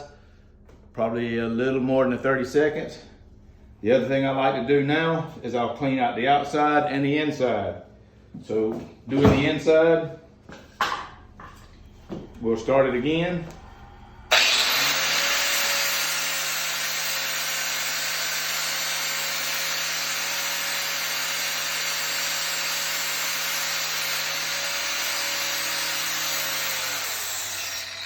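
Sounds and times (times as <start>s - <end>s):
angle grinder grinding metal: 14.2s - 28.0s.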